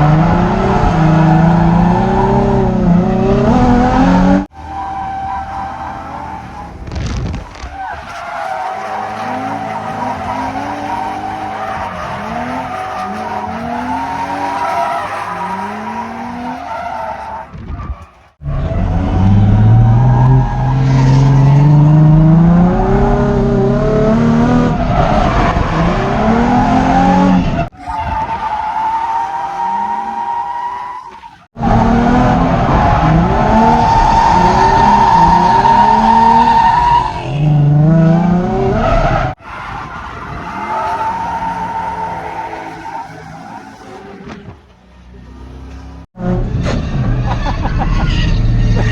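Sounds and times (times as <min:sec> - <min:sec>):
car engines revving: 0:00.0 - 0:48.9
tyre squeal: 0:04.5 - 0:20.9, 0:27.0 - 0:31.5.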